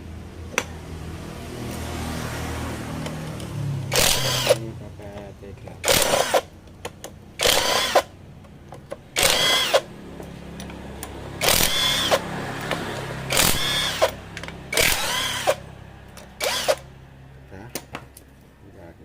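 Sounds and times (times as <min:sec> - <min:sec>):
power tool whine bursts: 0:03.9 - 0:04.6, 0:07.4 - 0:08.1, 0:09.2 - 0:09.9, 0:11.4 - 0:12.2, 0:13.3 - 0:15.6, 0:16.4 - 0:16.9.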